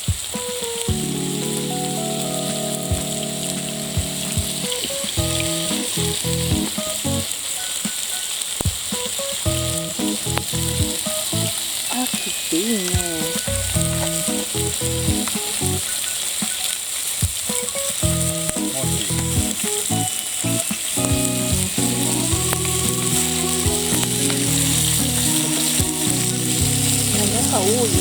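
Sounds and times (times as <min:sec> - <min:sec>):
food sizzling on griddle: 0:00.0 - 0:28.0
held low notes: 0:00.9 - 0:07.3, 0:09.5 - 0:11.6, 0:13.0 - 0:15.8, 0:18.0 - 0:28.0.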